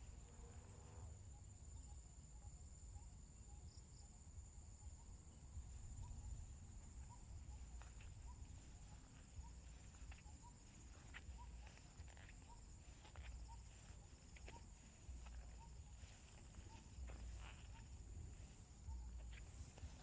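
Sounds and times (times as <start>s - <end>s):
higher insect buzz: 0.0s - 1.3s
insects buzzing: 0.0s - 20.0s.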